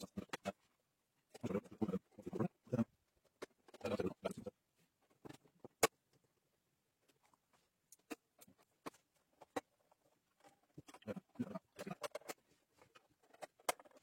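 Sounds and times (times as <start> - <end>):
plastic parts clicking and knocking: 0.0 - 14.0.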